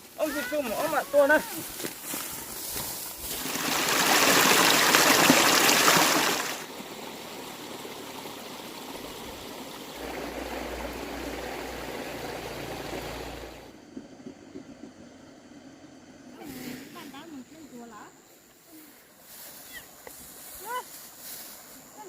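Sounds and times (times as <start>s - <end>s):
low hum: 9.9s - 16.4s
rushing noise: 10.0s - 13.8s.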